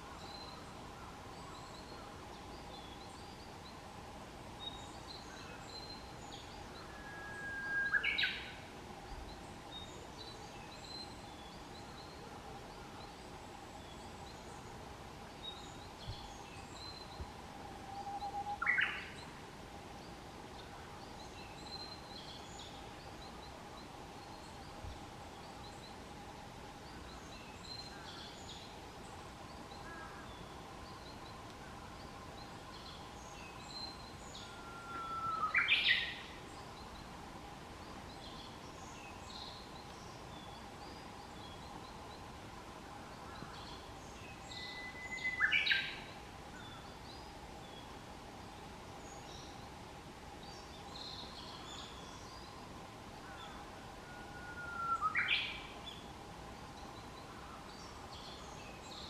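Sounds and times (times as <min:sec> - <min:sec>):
faint steady tone: 0:00.0 - 0:59.0.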